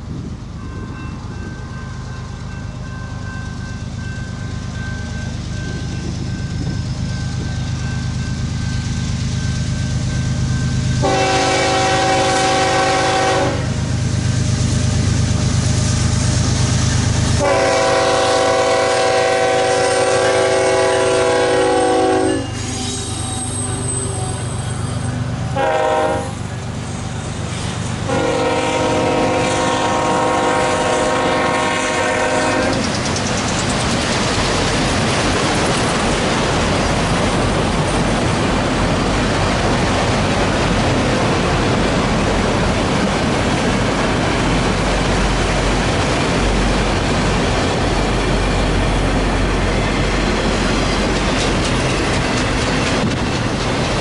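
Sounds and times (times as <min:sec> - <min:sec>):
train wheels on rail: 0:00.0 - 0:54.0
locomotive air horn: 0:11.0 - 0:13.8, 0:17.4 - 0:24.8, 0:25.5 - 0:26.5, 0:28.1 - 0:32.8.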